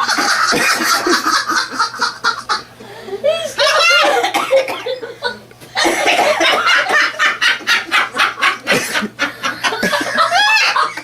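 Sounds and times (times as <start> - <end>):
hearty laughter: 0.0 - 11.0.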